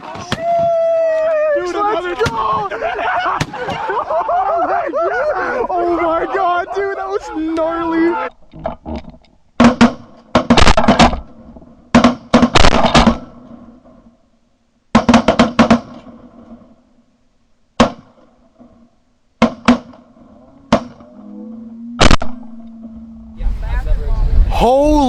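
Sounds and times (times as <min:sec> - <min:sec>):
shotguns firing: 0:03.4 - 0:03.9, 0:11.9 - 0:13.4.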